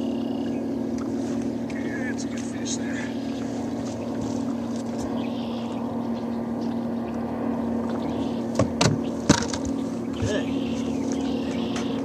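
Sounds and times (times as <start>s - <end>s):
low motor hum: 0.0s - 12.0s
sharp knocks and clicks: 8.5s - 10.4s.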